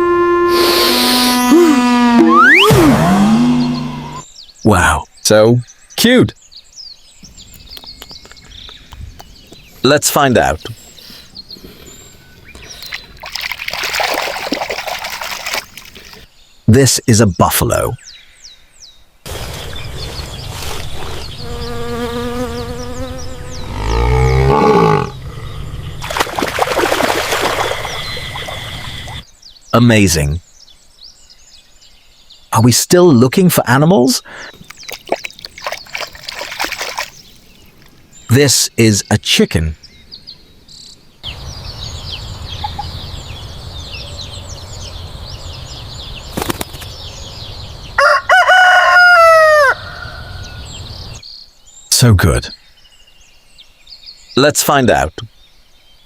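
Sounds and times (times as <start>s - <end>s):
birds chirping: 2.3s - 26.2s, 27.6s - 48.9s, 49.5s - 56.0s
rooster crowing: 48.0s - 50.5s.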